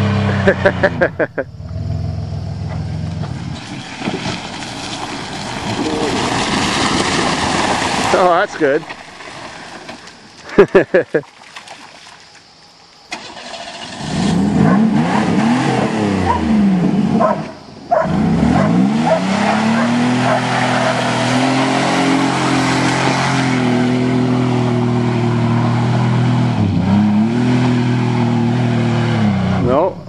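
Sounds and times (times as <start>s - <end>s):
car engine revving: 0.0s - 8.8s, 13.1s - 30.0s.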